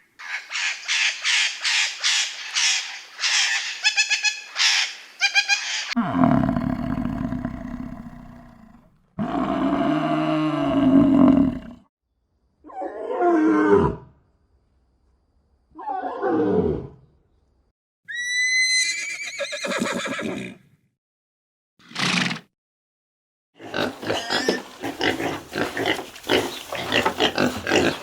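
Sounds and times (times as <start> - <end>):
horse whinnying: 18.1 - 20.6.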